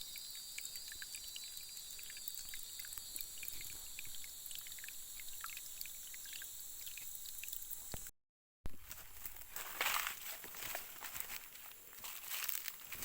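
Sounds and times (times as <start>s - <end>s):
forest stream trickling: 0.0s - 8.1s, 8.8s - 13.0s
short scattered drips or chirps: 0.0s - 8.1s.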